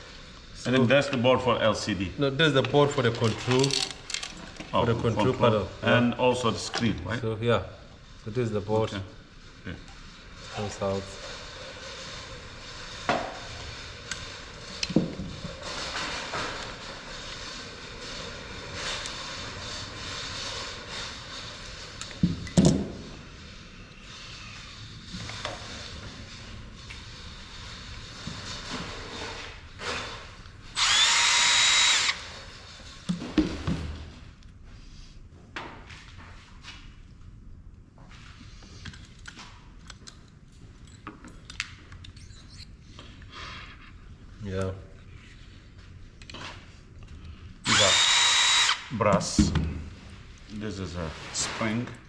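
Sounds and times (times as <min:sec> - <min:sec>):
printer parts clattering: 0:03.0 - 0:04.5.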